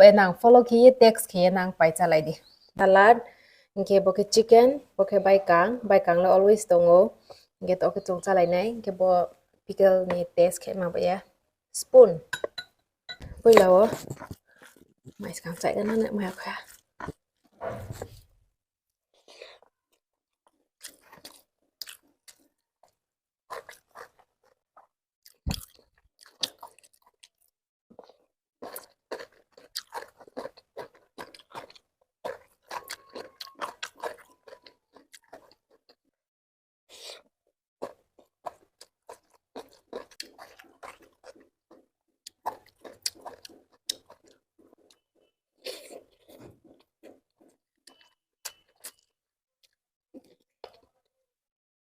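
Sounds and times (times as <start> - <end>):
person chewing and crunching food: 12.4 - 18.3, 19.1 - 36.2, 36.9 - 51.2.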